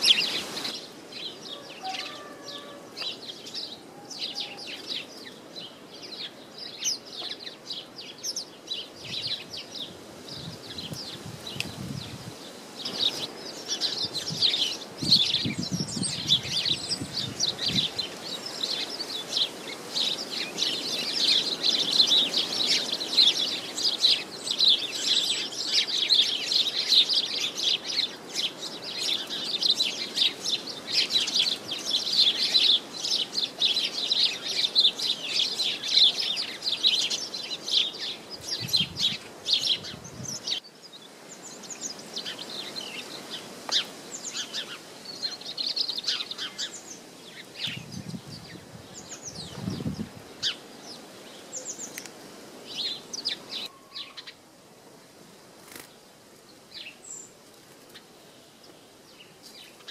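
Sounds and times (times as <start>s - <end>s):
small birds chirping: 0.0s - 54.6s, 55.3s - 59.9s
light wind rush: 9.0s - 20.4s, 37.4s - 40.6s, 46.7s - 53.6s.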